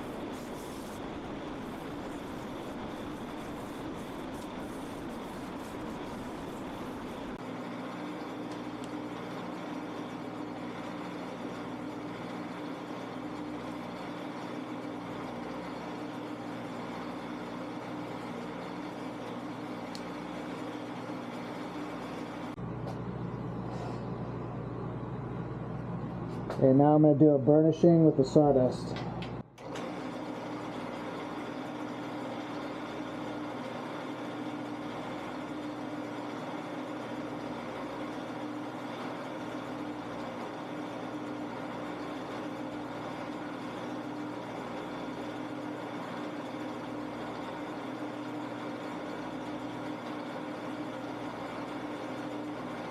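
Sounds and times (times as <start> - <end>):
wood burnishing hiss: 0.0 - 7.4
wood lathe motor humming: 0.0 - 22.5
lathe motor hum: 0.0 - 26.3, 29.1 - 52.9.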